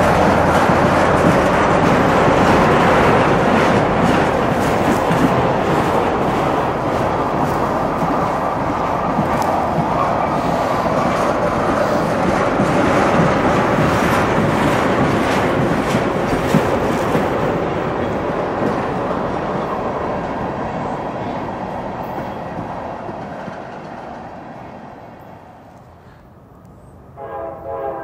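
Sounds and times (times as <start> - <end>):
freight train wheels rumbling: 0.0 - 28.0.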